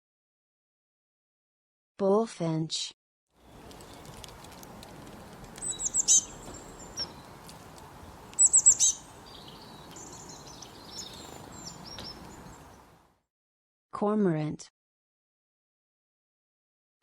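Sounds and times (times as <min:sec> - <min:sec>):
faint outdoor background noise: 0:03.4 - 0:13.2
bullfinch chirping: 0:05.6 - 0:07.4, 0:08.3 - 0:12.8.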